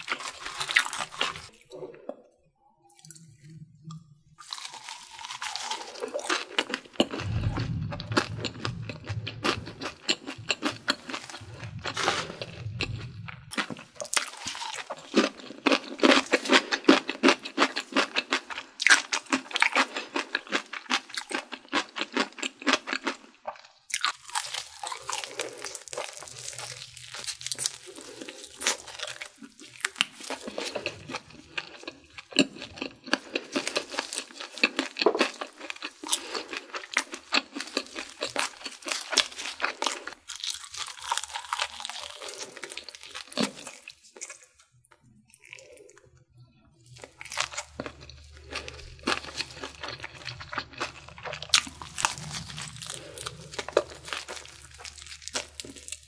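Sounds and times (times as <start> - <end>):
crunching crispy fried chicken: 0.0 - 1.6, 4.4 - 46.1, 46.8 - 56.0.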